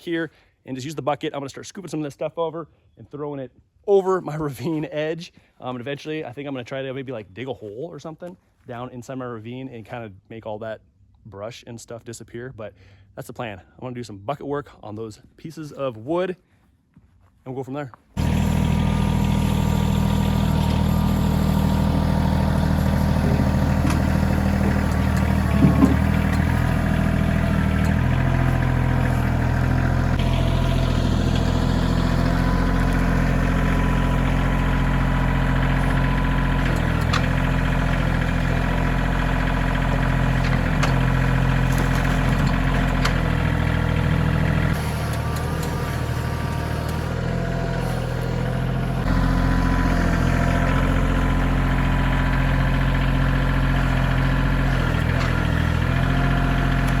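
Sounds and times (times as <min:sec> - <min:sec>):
tractor diesel engine running: 0:18.2 - 0:57.0.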